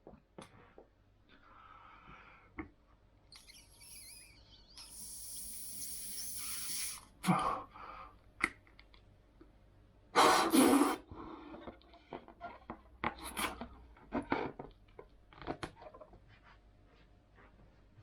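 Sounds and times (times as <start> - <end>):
balloons rubbing and squeaking: 3.3 - 7.0.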